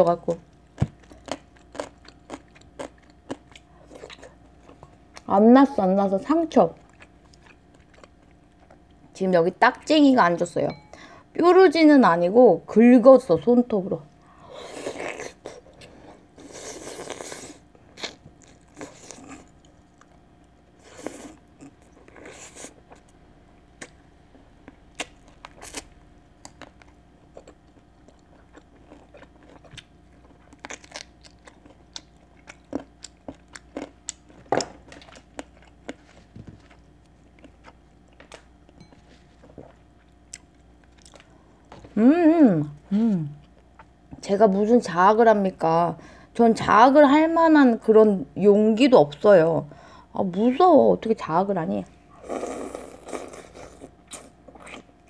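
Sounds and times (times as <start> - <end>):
person chewing food: 0.5 - 5.3, 6.8 - 9.0, 14.2 - 23.2, 23.8 - 41.8, 52.2 - 55.0.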